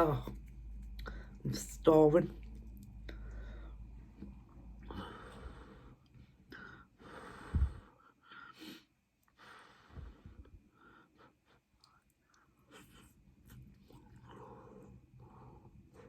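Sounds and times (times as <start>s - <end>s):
breathy sounds: 3.0s - 11.6s.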